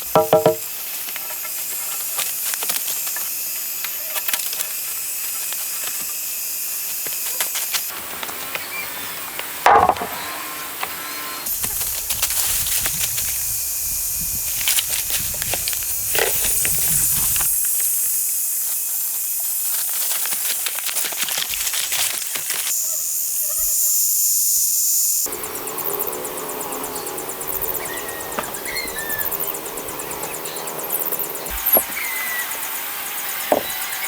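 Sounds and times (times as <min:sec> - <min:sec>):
steady hiss: 0:00.0 - 0:34.0
scattered crackles and clicks: 0:00.9 - 0:06.2, 0:19.4 - 0:22.8.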